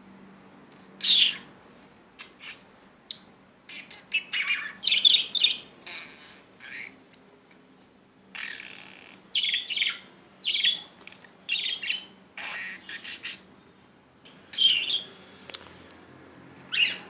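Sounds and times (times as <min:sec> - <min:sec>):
budgerigar chirping and chattering: 0:01.0 - 0:01.4, 0:02.2 - 0:07.0, 0:08.4 - 0:10.9, 0:11.5 - 0:13.5, 0:14.5 - 0:15.1, 0:16.7 - 0:17.0.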